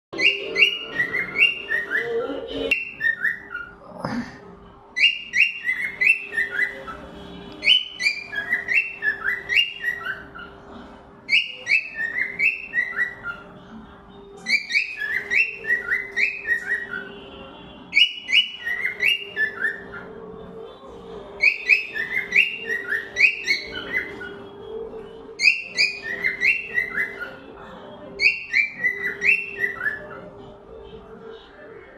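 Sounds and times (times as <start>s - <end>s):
cockatiel whistling: 0.2s - 2.1s, 2.7s - 3.7s, 5.0s - 7.0s, 7.6s - 10.5s, 11.3s - 13.4s, 14.5s - 17.1s, 17.9s - 20.1s, 21.4s - 24.4s, 25.4s - 27.4s, 28.2s - 30.2s.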